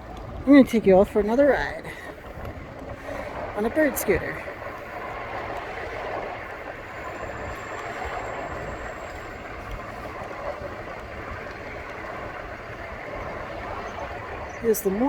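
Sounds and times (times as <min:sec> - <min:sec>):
electric scooter rolling over pavement: 0:00.0 - 0:15.0
wind on microphone: 0:00.0 - 0:15.0
faint high whine: 0:03.5 - 0:15.0.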